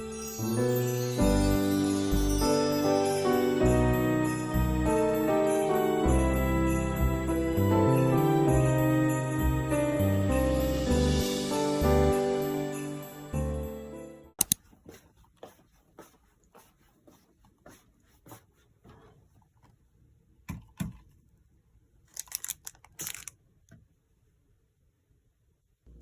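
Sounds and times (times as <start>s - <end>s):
background music: 0.0s - 14.4s
packaging handled with clicks and rustling: 22.1s - 23.4s.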